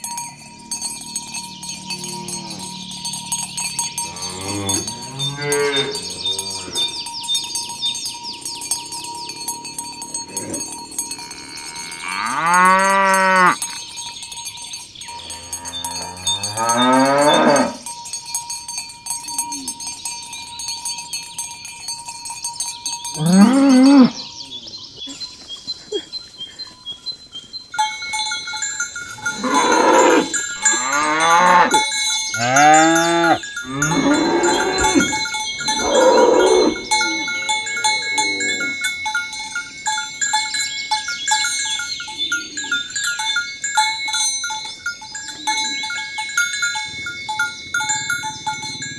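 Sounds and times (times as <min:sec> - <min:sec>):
cattle mooing: 0:01.8 - 0:02.8, 0:04.0 - 0:06.9, 0:11.3 - 0:13.6, 0:15.2 - 0:17.8, 0:23.2 - 0:24.2, 0:29.3 - 0:31.8, 0:32.4 - 0:38.8.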